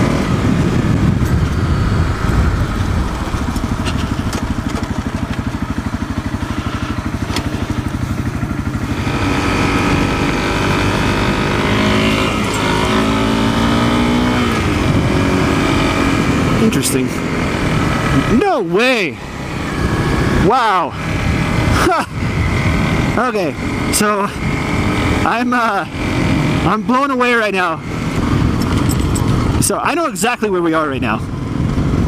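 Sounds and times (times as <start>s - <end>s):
motorcycle engine: 0.0s - 32.0s
gravel ticks: 1.2s - 8.0s.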